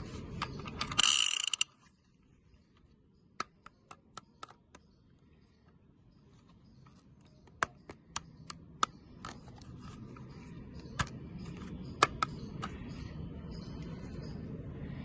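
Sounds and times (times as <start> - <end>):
plastic toy clicks and taps: 3.3 - 4.9, 7.4 - 9.6, 11.0 - 12.8.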